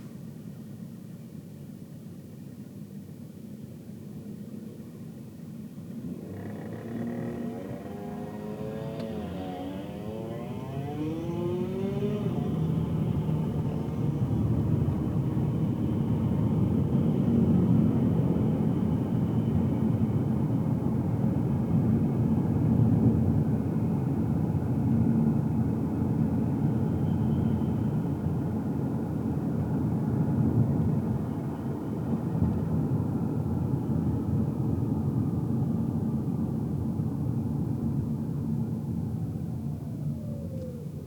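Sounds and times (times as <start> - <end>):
car engine and tyre rumble: 0.0 - 41.0.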